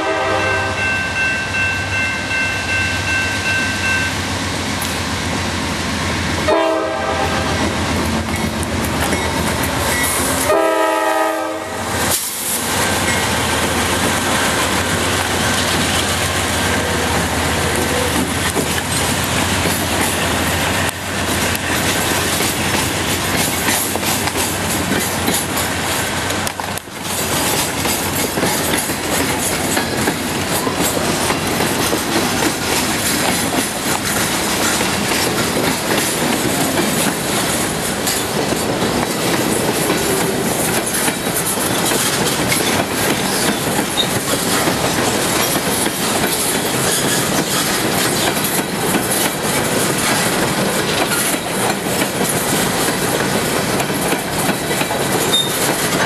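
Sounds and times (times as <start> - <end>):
freight train passing: 0.0 - 56.0
wheels rumbling on rails: 0.0 - 56.0.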